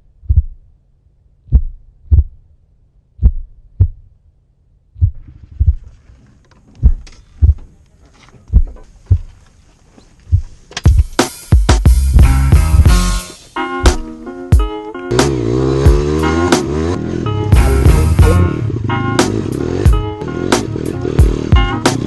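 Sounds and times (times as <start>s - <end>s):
heartbeat thumps: 0.2s - 0.6s, 1.4s - 2.5s, 3.2s - 4.2s, 5.0s - 6.0s, 6.8s - 7.7s, 8.5s - 9.4s, 10.3s - 13.0s, 21.2s - 21.8s
music: 10.8s - 22.0s.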